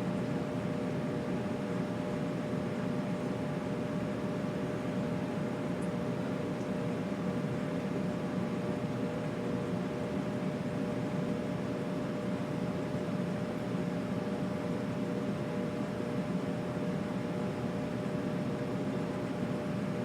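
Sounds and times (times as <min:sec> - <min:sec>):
air and fan rumble: 0:00.0 - 0:20.0
faint constant hum: 0:00.0 - 0:20.0.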